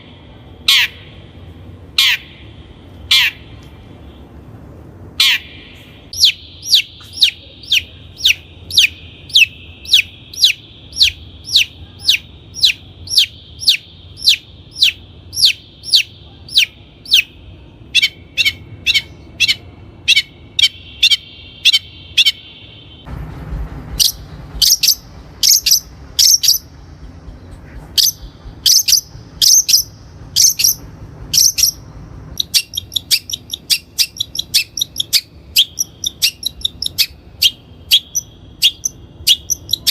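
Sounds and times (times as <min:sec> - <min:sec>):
steady high background tone: 0:00.0 - 0:39.9.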